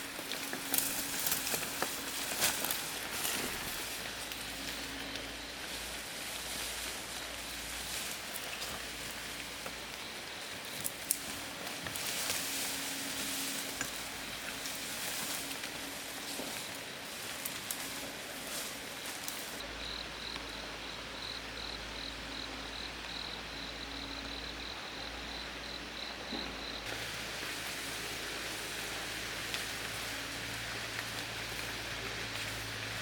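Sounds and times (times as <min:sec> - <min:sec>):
rain falling: 0:26.8 - 0:33.0.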